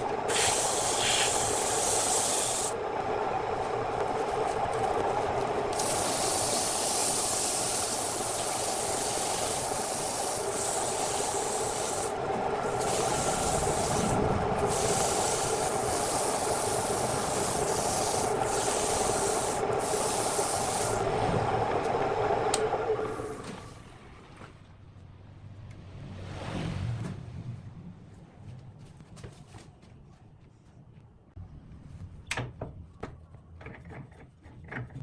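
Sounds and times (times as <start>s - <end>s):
sanding hiss on spinning wood: 0.0s - 2.8s, 5.2s - 21.3s
wood lathe humming: 0.0s - 23.6s.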